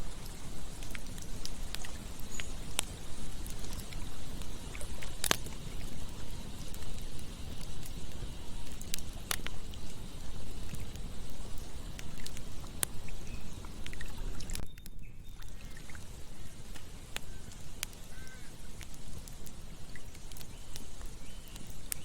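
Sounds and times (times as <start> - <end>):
flowing water rushing: 0.0 - 14.6
campfire crackling and popping: 0.0 - 22.0.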